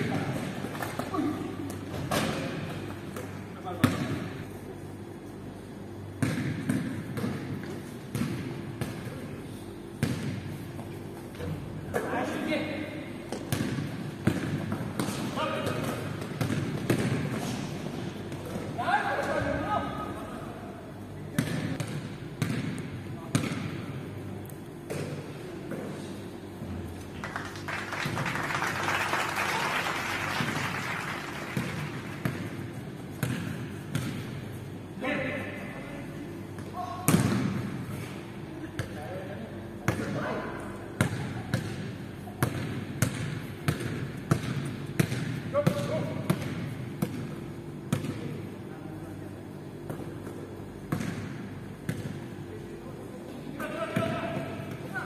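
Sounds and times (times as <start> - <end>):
basketball bouncing in a gym: 0.0 - 4.6, 5.2 - 20.2, 21.2 - 26.6, 31.4 - 53.0, 53.6 - 55.0
steady low hum: 0.0 - 55.0
hand clapping: 27.1 - 32.2.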